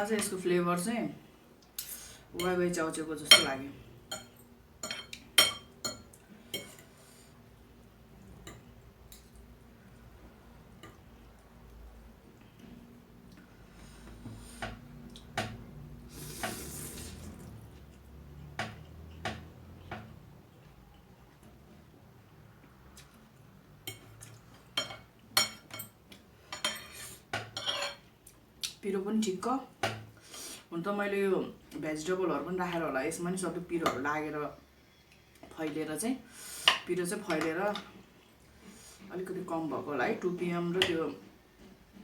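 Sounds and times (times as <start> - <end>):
cutlery clinking against bowl: 3.3 - 6.9, 23.9 - 28.1.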